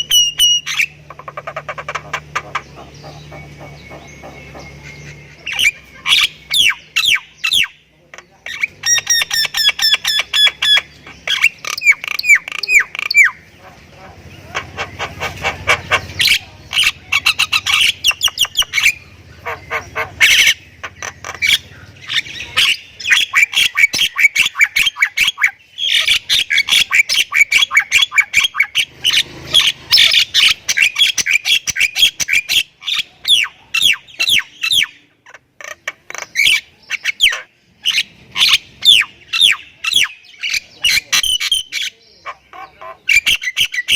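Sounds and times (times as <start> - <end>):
myna bird singing: 0.0 - 43.9.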